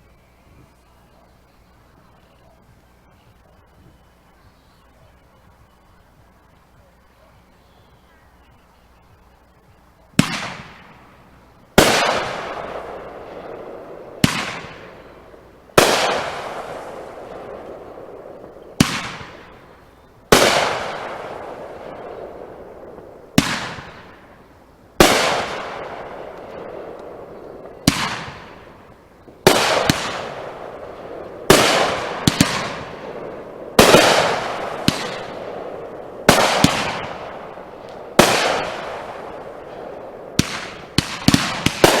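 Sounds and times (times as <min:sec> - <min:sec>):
fireworks hiss: 0:00.0 - 0:42.0
fireworks bangs: 0:09.1 - 0:42.0.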